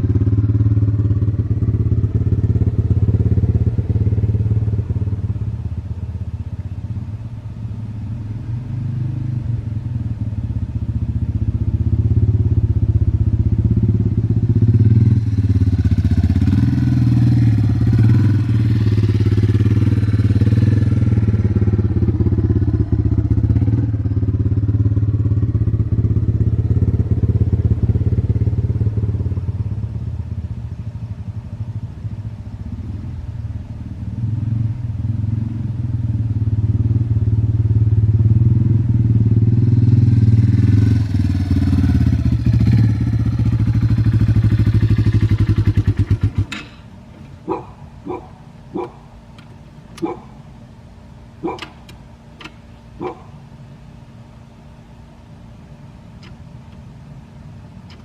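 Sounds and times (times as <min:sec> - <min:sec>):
dirt bike engine running: 0:00.0 - 0:08.5, 0:09.8 - 0:50.5, 0:51.4 - 0:53.4.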